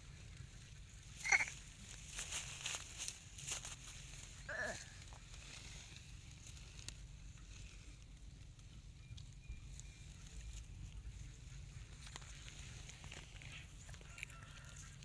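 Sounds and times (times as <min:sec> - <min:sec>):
puppy squealing: 0:01.2 - 0:01.5.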